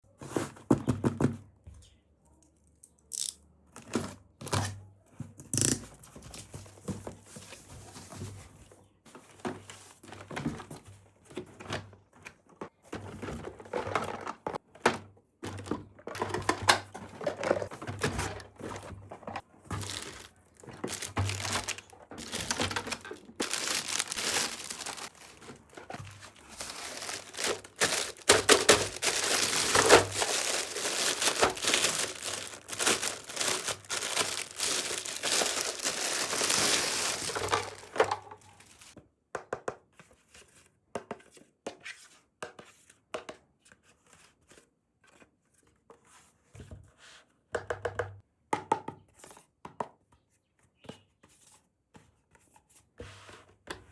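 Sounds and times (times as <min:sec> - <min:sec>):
plastic wrapping crinkling and tearing: 0:17.3 - 0:39.0.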